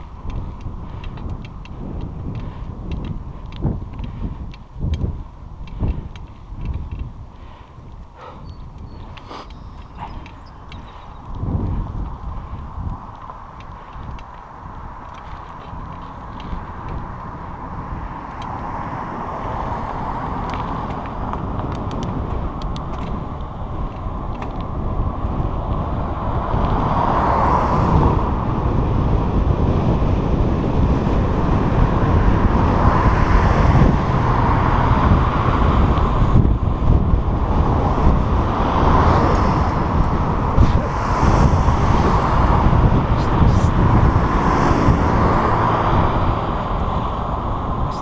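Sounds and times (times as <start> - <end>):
bicycle tyres rolling: 0.0 - 48.0
wind buffeting microphone: 0.0 - 48.0
light ticks: 7.9 - 17.3.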